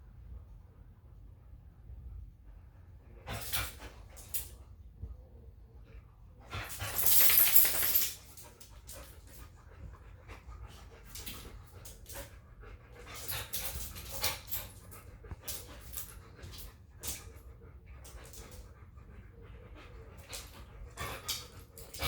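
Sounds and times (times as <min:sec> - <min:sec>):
dogs panting: 0:03.1 - 0:22.0
short rustles and clicks: 0:06.5 - 0:09.5.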